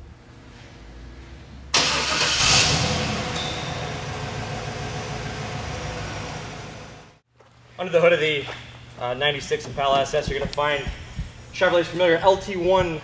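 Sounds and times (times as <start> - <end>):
car engine starting and idling: 1.7 - 7.2.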